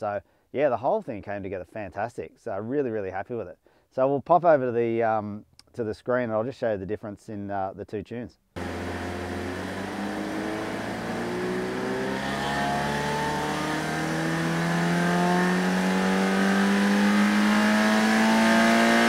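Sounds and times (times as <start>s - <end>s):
car engine revving on dyno: 8.6s - 19.0s.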